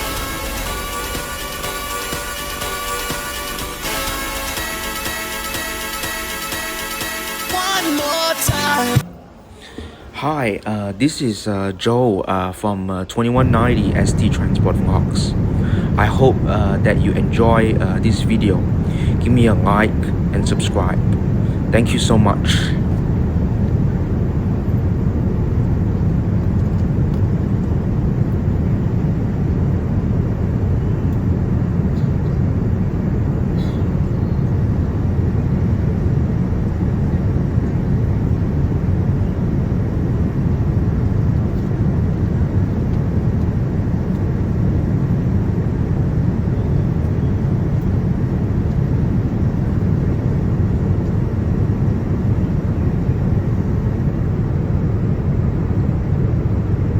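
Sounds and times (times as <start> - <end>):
rushing air: 0.0 - 10.9, 13.4 - 47.0
airliner engines roaring: 0.0 - 56.9.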